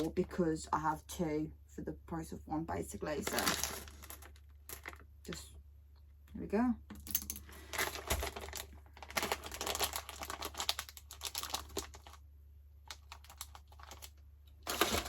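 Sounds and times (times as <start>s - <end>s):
sweet wrappers rustling: 3.2s - 5.4s, 7.3s - 12.2s, 12.8s - 15.0s.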